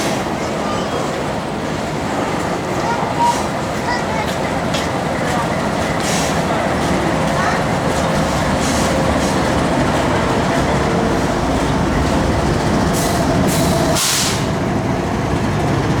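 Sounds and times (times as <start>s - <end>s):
steel wheels rumbling on rail: 0.0s - 16.0s
short rushing hiss: 13.0s - 14.6s.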